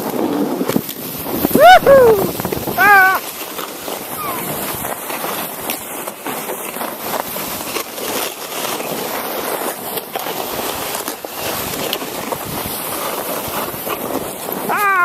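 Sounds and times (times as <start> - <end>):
sled knocks and jolts: 0.0 - 15.0
sled scraping on snow: 0.0 - 15.0
wind buffeting microphone: 1.1 - 3.2.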